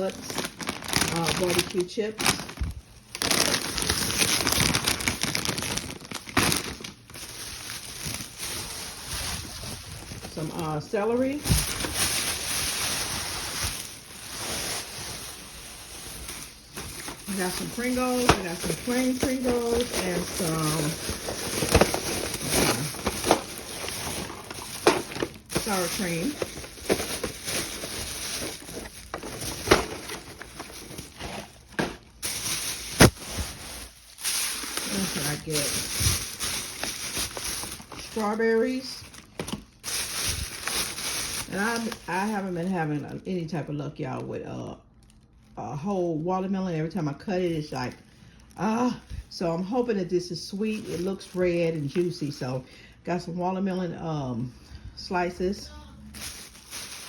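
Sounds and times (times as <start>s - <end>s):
sharp plastic crackle: 0.0s - 43.2s, 55.8s - 57.0s
plastic packaging crinkling: 0.0s - 43.3s, 44.1s - 45.6s, 47.3s - 53.0s, 55.4s - 57.0s.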